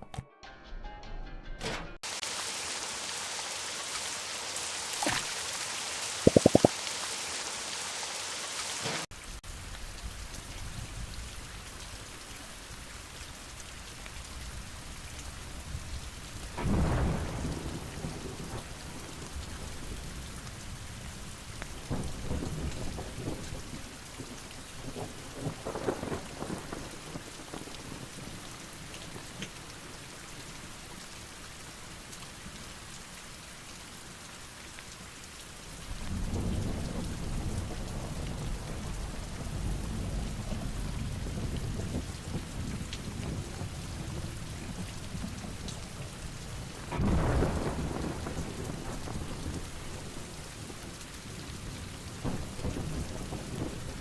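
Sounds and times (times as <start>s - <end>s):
heavy rain falling: 2.0s - 54.0s
thunder rumbling: 16.6s - 20.0s, 36.1s - 50.7s.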